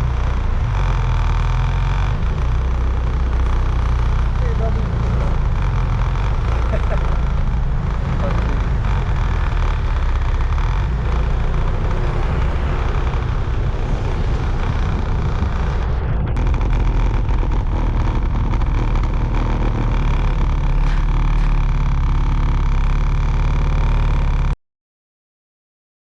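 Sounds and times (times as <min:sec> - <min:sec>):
motorbike engine and road noise: 0:00.0 - 0:24.6.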